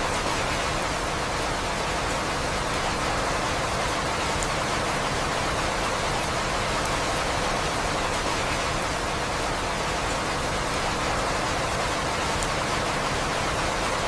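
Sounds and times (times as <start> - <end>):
steady rain: 0.0 - 14.0
faint raindrop ticks: 1.7 - 9.0, 9.8 - 14.0.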